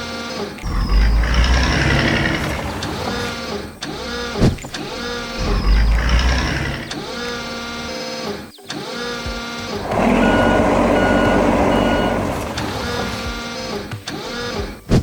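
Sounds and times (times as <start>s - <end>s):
machine whine rising and falling: 0.6s - 8.0s, 9.6s - 13.8s
repeating reverse alarm beep: 9.8s - 13.5s.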